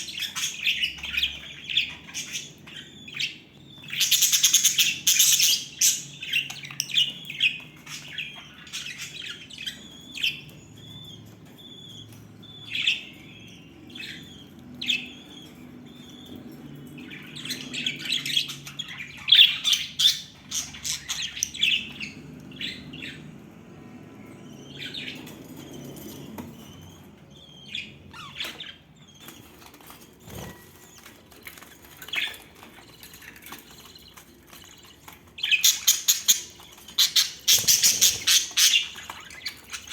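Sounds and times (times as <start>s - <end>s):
budgerigars chattering: 35.4s - 39.9s.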